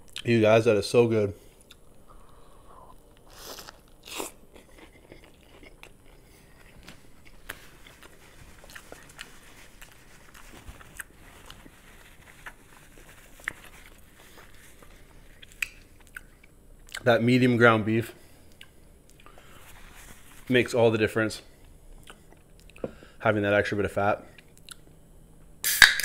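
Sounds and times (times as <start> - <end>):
chewing: 1.6 - 17.0, 22.0 - 22.8
crunchy burger bites: 3.0 - 11.8.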